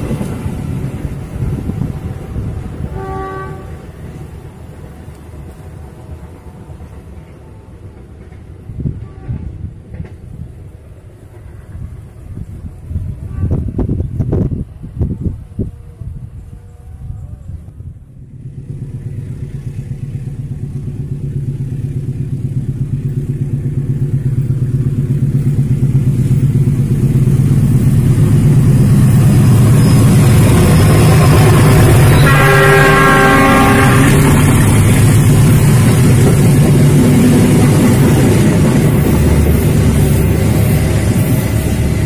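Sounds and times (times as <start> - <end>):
coaches rumbling on rails: 0.0 - 42.0
diesel locomotive engine drone: 0.0 - 42.0
train horn: 2.1 - 3.9, 9.0 - 9.6, 13.1 - 13.8, 15.6 - 17.6, 30.8 - 34.9.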